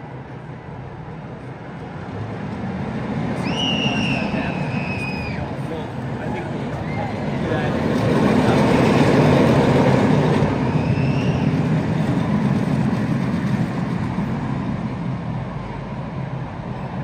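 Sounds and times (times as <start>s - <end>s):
roller coaster rumbling on track: 0.0s - 17.0s
faint rising squeal: 3.4s - 7.7s, 10.6s - 11.7s.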